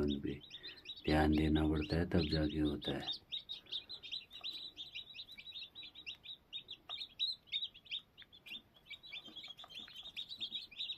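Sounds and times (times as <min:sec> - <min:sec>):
chicks peeping: 0:00.0 - 0:10.9.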